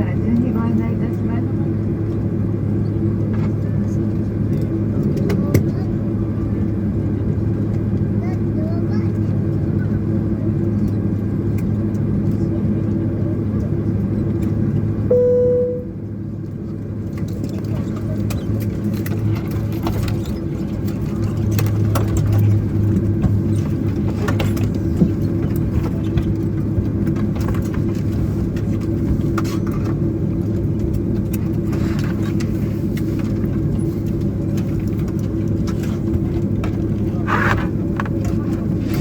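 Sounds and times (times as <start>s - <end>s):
airliner cabin engine hum: 0.0s - 39.0s.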